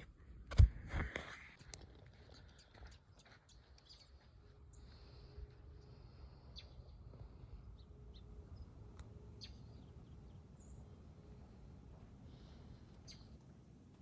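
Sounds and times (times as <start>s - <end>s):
low background rumble: 2.1s - 14.0s
faint bird chirps: 2.2s - 11.7s, 12.4s - 13.4s.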